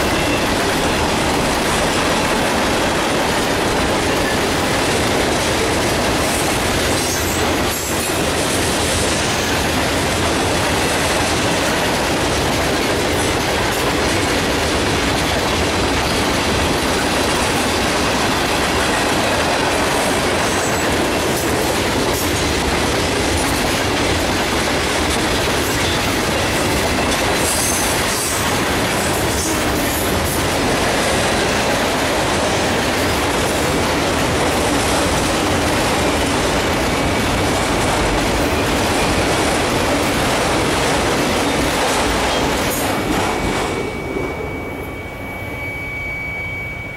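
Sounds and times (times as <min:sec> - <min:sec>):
freight train wheels clacking on rails: 0:00.0 - 0:46.5
high wheel squeal: 0:42.2 - 0:46.9.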